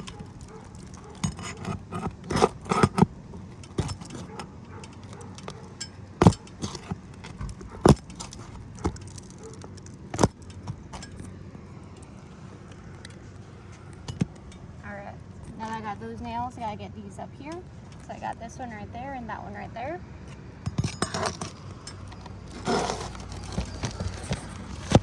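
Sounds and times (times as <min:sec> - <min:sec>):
metal tool scraping under shingles: 0:00.0 - 0:11.4, 0:20.6 - 0:25.0.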